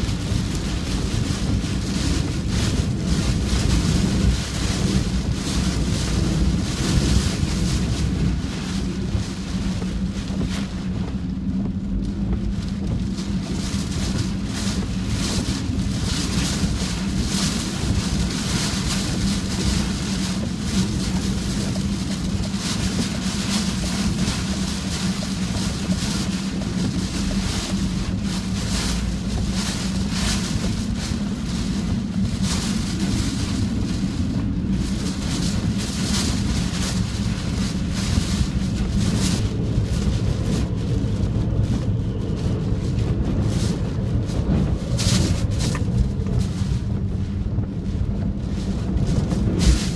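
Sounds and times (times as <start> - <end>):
gusty wind buffeting microphone: 0.0 - 49.9
steady low hum: 0.0 - 49.9.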